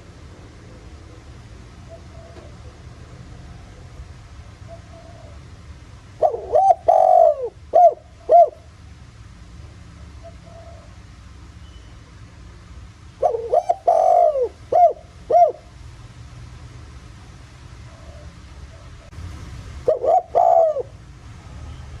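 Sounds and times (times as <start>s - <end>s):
dove cooing: 1.8s - 2.8s, 4.7s - 5.4s, 6.2s - 8.7s, 10.2s - 11.0s, 13.2s - 15.8s, 19.9s - 21.0s.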